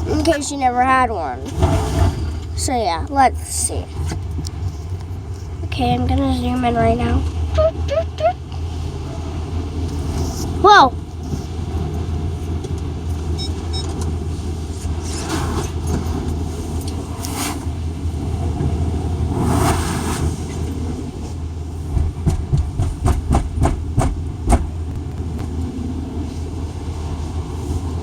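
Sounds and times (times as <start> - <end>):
car wash low rumble: 0.0 - 28.0
knocks and thuds: 21.9 - 25.1.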